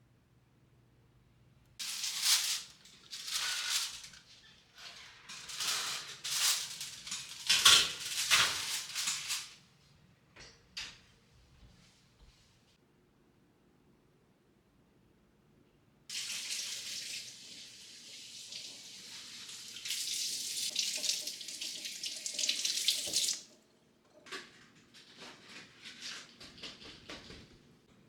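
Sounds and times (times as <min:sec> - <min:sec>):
tap water running into sink: 0:16.1 - 0:24.4.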